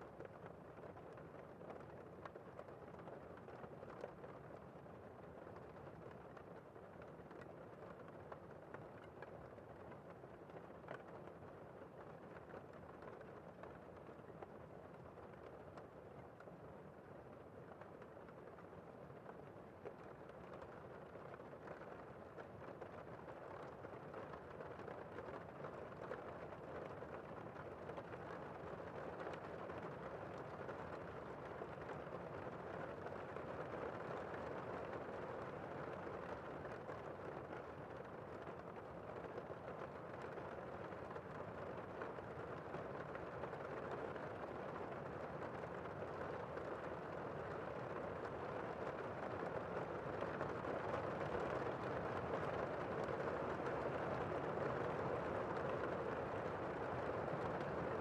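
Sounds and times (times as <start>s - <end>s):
heavy rain on roof and windows: 40.0s - 58.0s.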